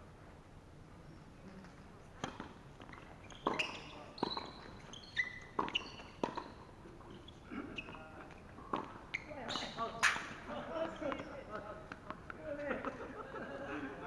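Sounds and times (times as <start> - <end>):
ball bouncing on court: 2.2 - 6.6, 7.8 - 13.0
racquets striking tennis ball: 2.2 - 6.8, 7.8 - 13.0
shoes squeaking: 2.2 - 12.9.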